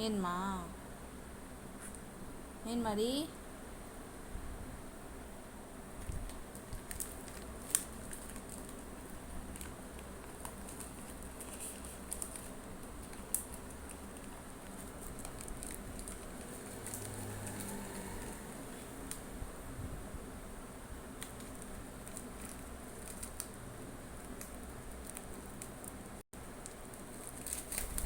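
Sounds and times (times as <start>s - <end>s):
parrot pecking and scratching: 6.0s - 18.0s, 21.2s - 23.6s, 24.2s - 28.0s.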